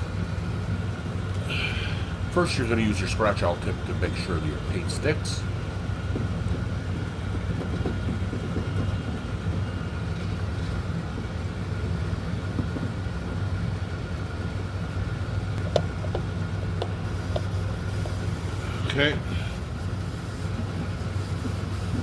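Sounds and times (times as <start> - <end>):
motor hum with high whine: 0.0 - 22.0.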